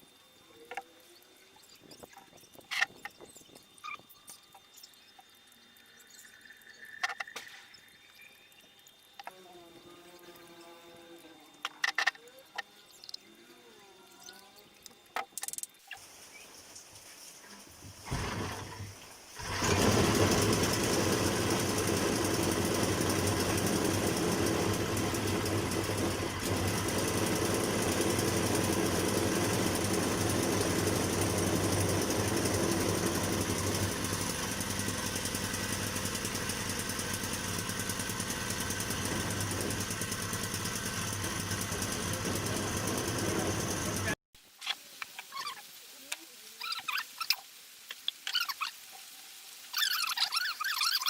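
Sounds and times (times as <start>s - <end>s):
generator engine starting and running: 18.1s - 44.2s.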